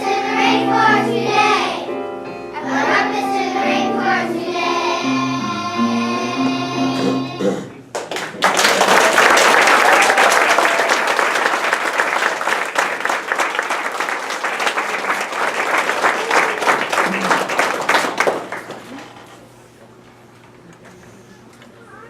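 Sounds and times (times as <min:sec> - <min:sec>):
children's song with accompaniment: 0:00.0 - 0:07.8
audience applause: 0:07.9 - 0:19.3.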